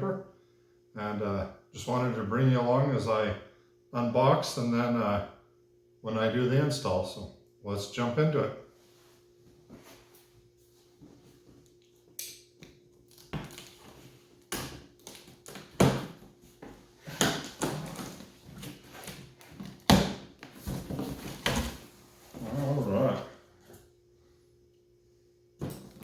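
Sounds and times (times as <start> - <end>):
cardboard ripping: 17.0 - 22.8
cardboard scraping and rustling: 17.0 - 23.1.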